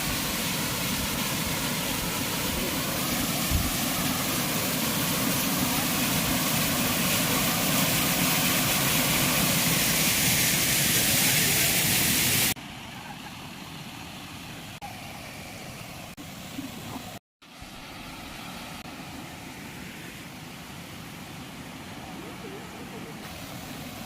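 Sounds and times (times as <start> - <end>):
waterfall rushing: 0.0 - 13.7, 21.5 - 24.0.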